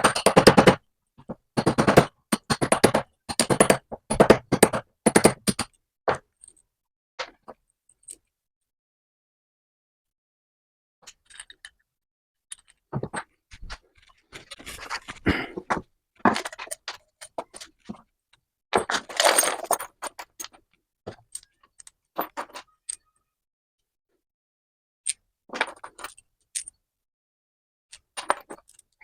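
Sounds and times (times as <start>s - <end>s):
metal tools clinking and scraping: 14.0s - 15.2s.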